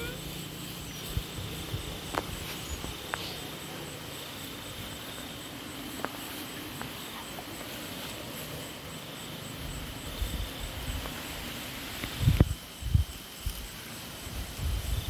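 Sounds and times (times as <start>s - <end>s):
crickets chirring: 0.0s - 15.0s
wind rumble on microphone: 0.4s - 3.2s, 9.6s - 15.0s.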